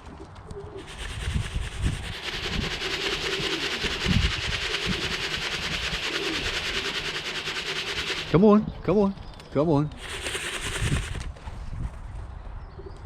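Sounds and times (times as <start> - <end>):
pigeons cooing: 0.5 - 8.8
wind buffeting microphone: 0.8 - 8.9, 9.9 - 13.0.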